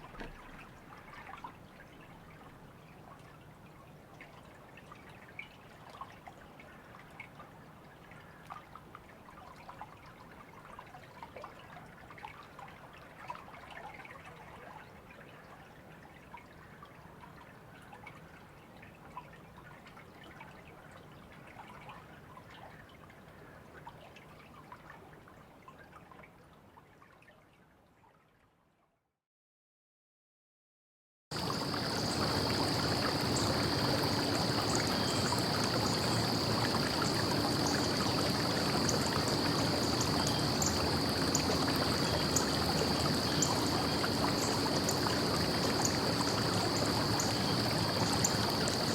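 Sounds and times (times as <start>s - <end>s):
water drips and splashes: 0.0s - 3.4s, 31.3s - 48.9s
stream trickling and babbling: 0.0s - 28.8s, 31.3s - 48.9s.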